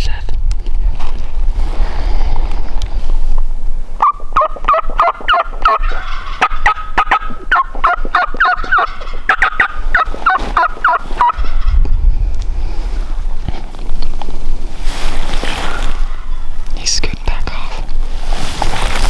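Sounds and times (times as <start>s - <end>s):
wild turkey gobbling: 4.0s - 11.5s.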